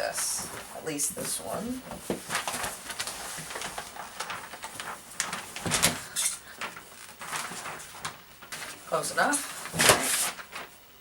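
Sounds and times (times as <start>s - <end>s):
wrapping paper rustling and crinkling: 0.0s - 10.8s.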